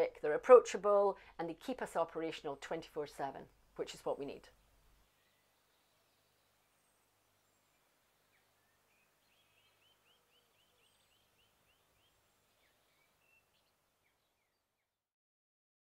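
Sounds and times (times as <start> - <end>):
faint birdsong chirps: 3.4 - 15.0.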